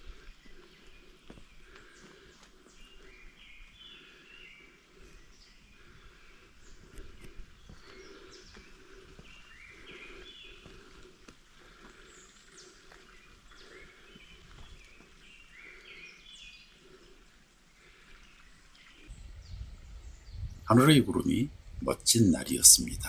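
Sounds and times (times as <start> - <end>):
low outdoor background noise: 15.0 - 23.0
small birds chirping: 19.1 - 23.0.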